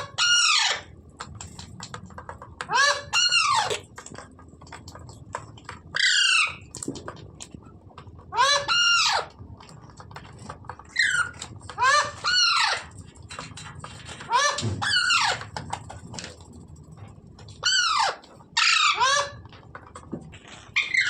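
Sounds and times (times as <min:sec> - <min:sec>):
parakeet squawking: 0:00.0 - 0:00.9, 0:02.6 - 0:03.8, 0:05.9 - 0:06.8, 0:08.3 - 0:09.3, 0:10.9 - 0:12.9, 0:14.2 - 0:15.5, 0:17.6 - 0:19.5, 0:20.7 - 0:21.0.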